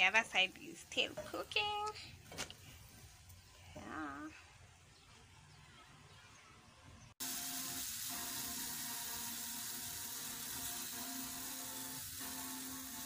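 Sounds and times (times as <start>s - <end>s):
pancake batter sizzling: 7.2s - 13.0s.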